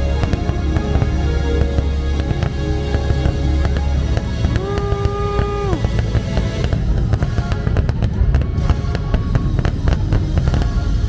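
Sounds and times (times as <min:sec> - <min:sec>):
fireworks bangs and crackles: 0:00.0 - 0:11.0
heavy low boom: 0:00.0 - 0:11.0
loud show music: 0:00.0 - 0:11.0.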